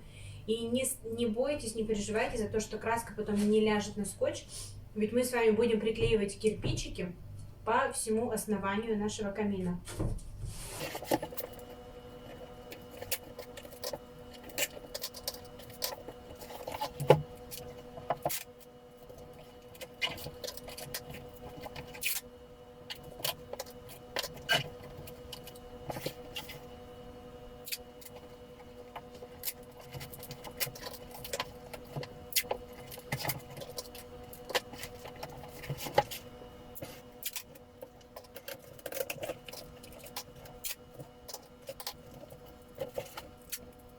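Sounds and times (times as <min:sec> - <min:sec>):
faint steady hum: 0:00.0 - 0:43.9
crackles and rustles of handling: 0:09.8 - 0:43.9.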